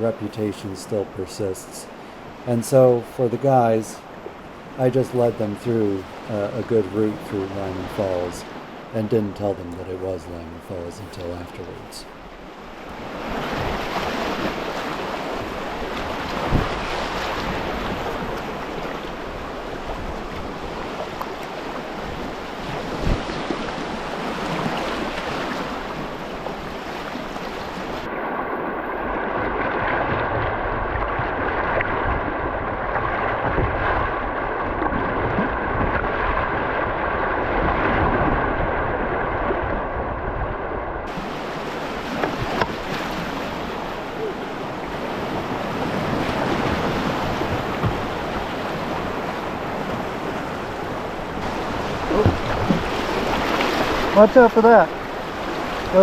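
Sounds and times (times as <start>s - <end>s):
river water rushing: 0.0s - 40.0s, 41.0s - 56.0s
wind buffeting microphone: 12.9s - 26.9s, 27.7s - 54.2s.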